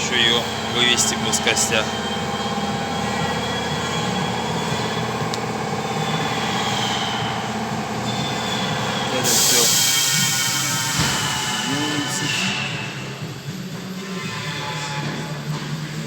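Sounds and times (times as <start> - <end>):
mechanical whine: 0.0 - 16.0
loud hissing rush: 9.2 - 13.3.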